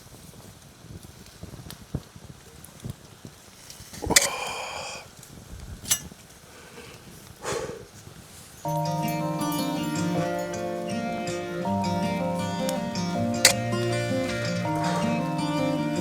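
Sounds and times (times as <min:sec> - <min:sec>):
campfire crackling and popping: 0:00.0 - 0:16.0
sharp clink: 0:04.1 - 0:04.5, 0:13.4 - 0:15.0.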